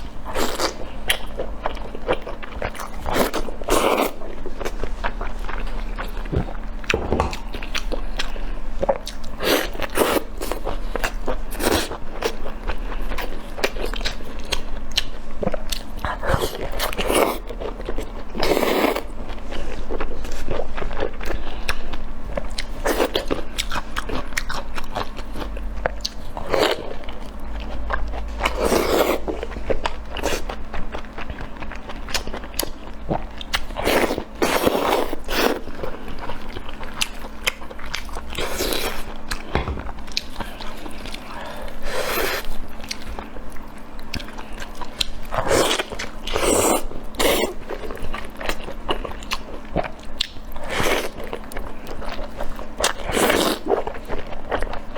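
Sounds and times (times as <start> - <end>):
person chewing crunchy food: 0.0 - 54.9.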